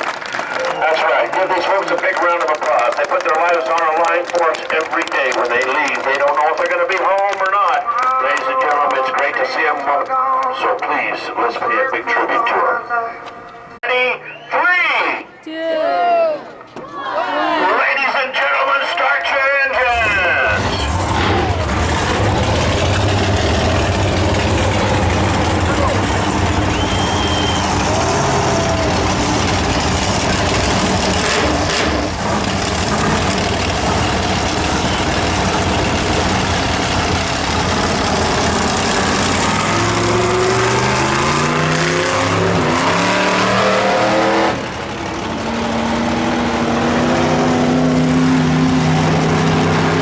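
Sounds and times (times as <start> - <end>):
monster truck engines revving: 0.0 - 13.0, 17.7 - 50.0.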